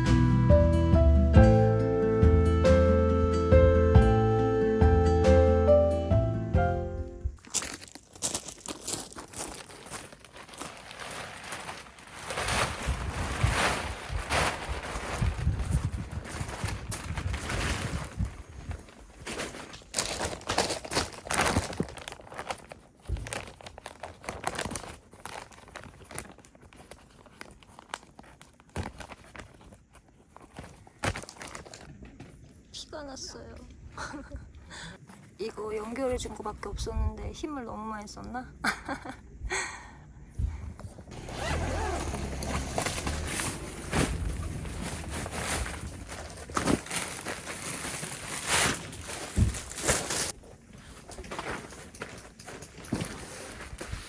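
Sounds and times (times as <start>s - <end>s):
material crinkling and rustling: 7.3s - 34.3s, 40.8s - 54.0s.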